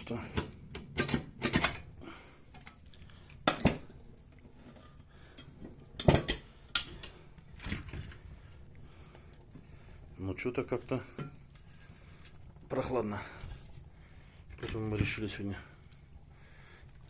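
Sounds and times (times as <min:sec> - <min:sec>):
hard objects clinking and knocking: 0:00.3 - 0:01.9, 0:03.4 - 0:03.9, 0:04.6 - 0:08.2.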